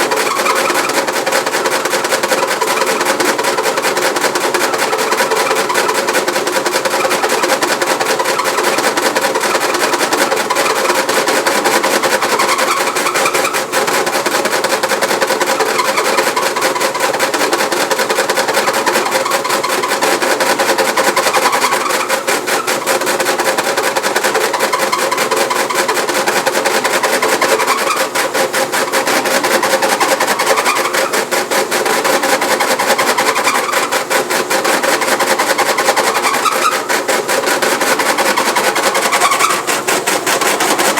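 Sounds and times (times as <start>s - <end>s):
washing machine rattling: 0.0s - 40.9s.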